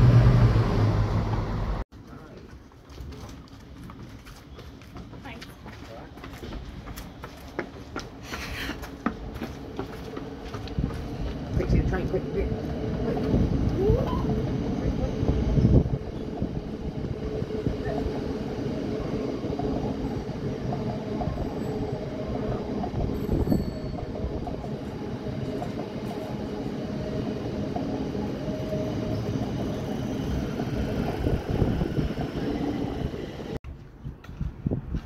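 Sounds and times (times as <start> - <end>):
train wheels rumbling on rails: 0.0 - 33.6.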